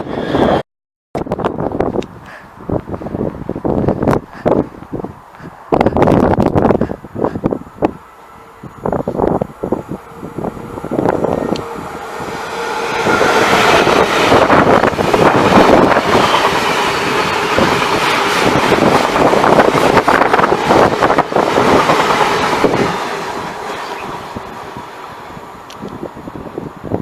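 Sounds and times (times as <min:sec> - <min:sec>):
train passing at speed: 0:00.0 - 0:00.6, 0:01.6 - 0:27.0.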